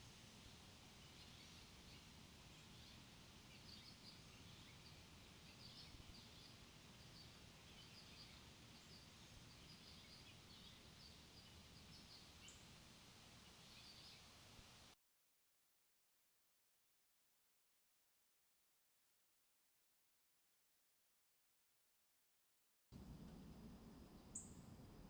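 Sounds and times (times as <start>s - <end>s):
outdoor background hiss: 0.0s - 15.0s, 23.0s - 25.0s.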